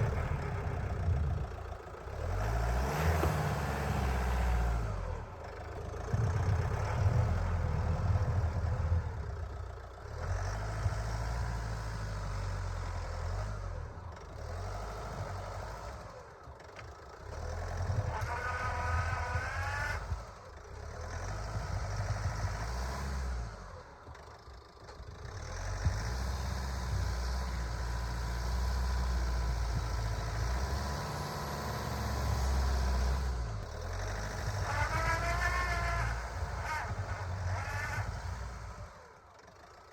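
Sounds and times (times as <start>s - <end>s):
van engine revving: 0.0s - 16.1s, 25.2s - 39.9s.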